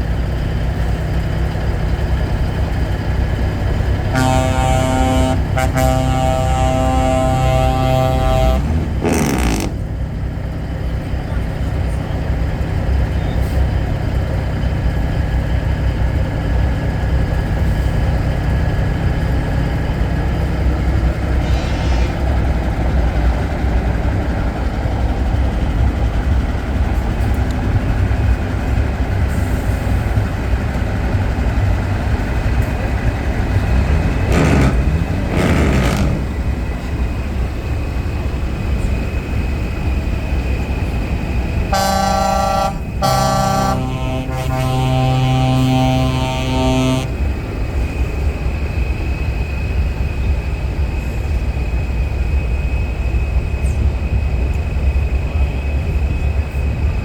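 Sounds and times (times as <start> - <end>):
truck engines rumbling: 0.0 - 57.0
truck air horn: 4.1 - 9.8, 33.6 - 36.4, 41.7 - 47.2.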